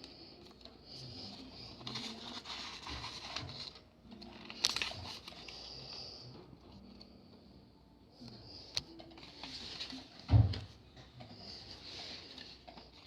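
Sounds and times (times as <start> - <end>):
rustling handling noise: 0.0 - 5.7.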